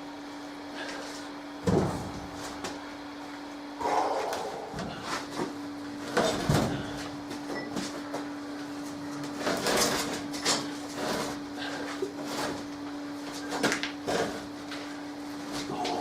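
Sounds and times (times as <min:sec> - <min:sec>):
heavy thud: 0:01.6 - 0:02.6.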